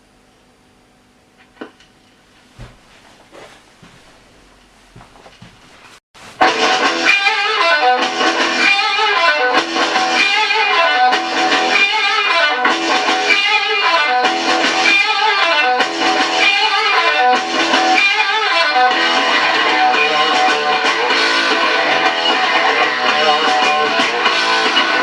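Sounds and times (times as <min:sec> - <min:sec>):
guitar music from a record player: 0:06.2 - 0:25.0.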